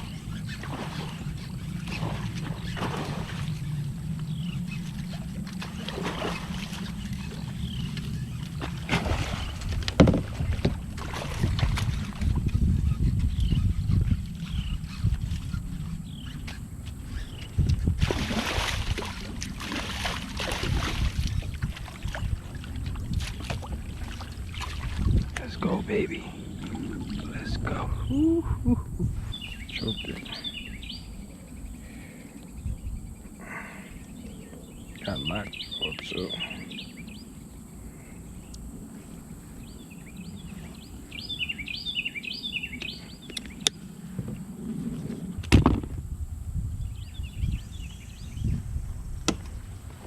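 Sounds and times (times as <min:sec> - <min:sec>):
water splashing and sloshing: 0:00.0 - 0:32.5
steady low rumble: 0:00.0 - 0:50.0
knocks against plastic hull: 0:09.9 - 0:10.8, 0:45.4 - 0:46.0
songbird chirping: 0:23.1 - 0:44.5.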